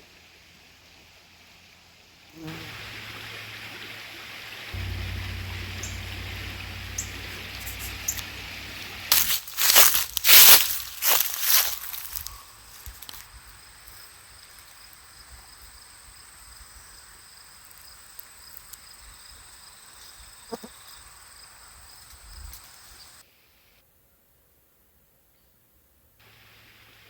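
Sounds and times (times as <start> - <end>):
dry leaves rustling: 4.7 - 14.8
insects trilling: 4.7 - 23.2
short low sound: 4.8 - 10.3.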